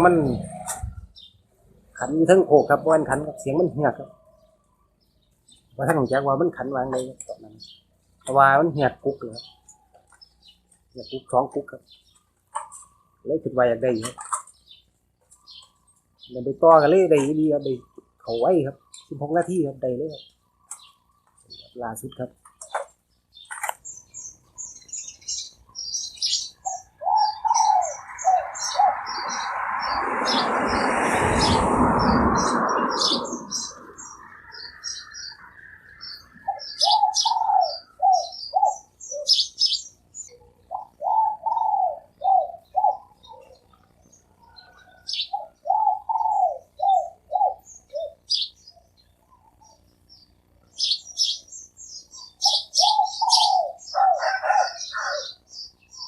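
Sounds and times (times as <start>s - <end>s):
doves cooing: 0.0s - 48.6s, 50.7s - 56.0s
small birds chirping: 0.0s - 56.0s
loud rushing noise: 28.1s - 34.6s.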